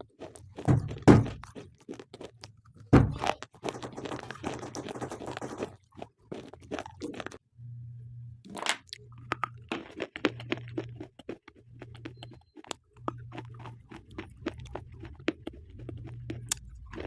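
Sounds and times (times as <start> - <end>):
pencils being chewed crunching: 0.0 - 7.4, 8.5 - 17.0
low hum: 7.4 - 11.0.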